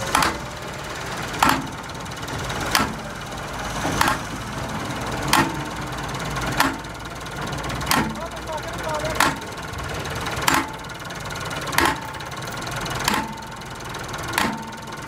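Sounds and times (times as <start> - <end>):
low machine hum: 0.0 - 15.0
hammer ringing on metal: 14.4 - 14.9.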